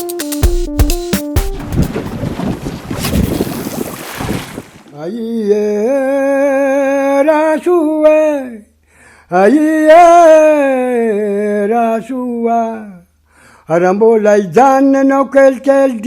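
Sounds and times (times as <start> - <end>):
solo voice singing a chant: 5.0 - 8.7, 9.3 - 13.1.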